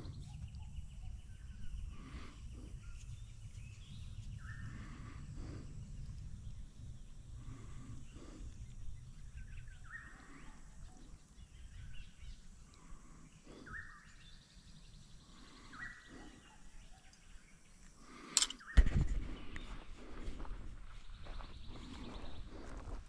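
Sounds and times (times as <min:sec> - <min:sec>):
bird calling: 0:07.5 - 0:14.6, 0:15.2 - 0:17.4.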